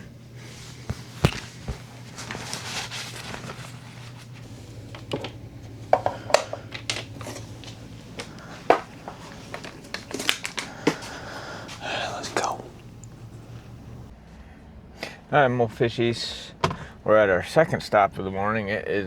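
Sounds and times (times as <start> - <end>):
rustling: 0.4 - 4.5.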